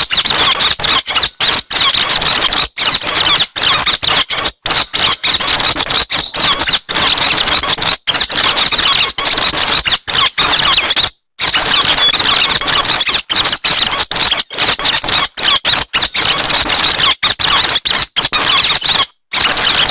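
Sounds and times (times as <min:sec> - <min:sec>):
recorded birdsong chirps and trills: 0:00.0 - 0:18.8.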